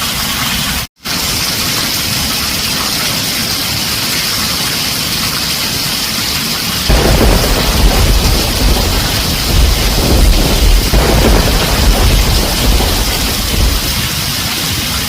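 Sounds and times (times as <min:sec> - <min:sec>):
rain on a tin roof: 0:00.0 - 0:15.0
thunder rumbling: 0:06.9 - 0:14.7.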